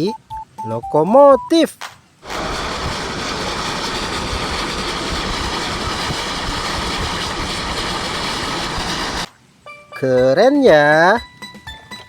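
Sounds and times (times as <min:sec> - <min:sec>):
train rumbling on rails: 0:02.2 - 0:09.3.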